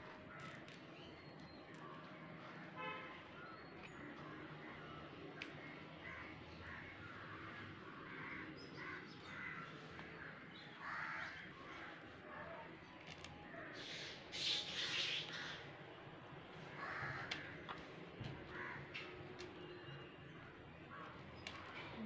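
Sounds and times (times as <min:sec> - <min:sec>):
harsh bird calls: 0:13.6 - 0:15.7.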